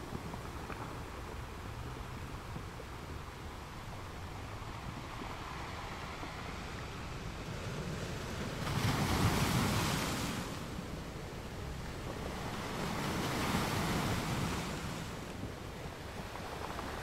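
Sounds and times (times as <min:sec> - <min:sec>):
sea waves washing: 0:00.0 - 0:17.0
wind noise on microphone: 0:00.0 - 0:17.0.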